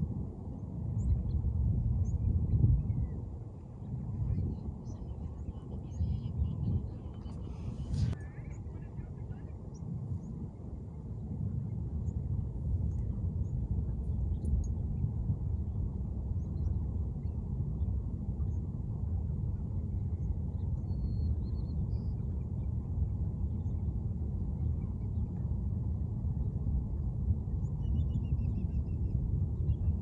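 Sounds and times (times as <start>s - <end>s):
low rumble: 0.0s - 20.4s
faint bird chirps: 3.8s - 10.4s, 20.0s - 22.3s.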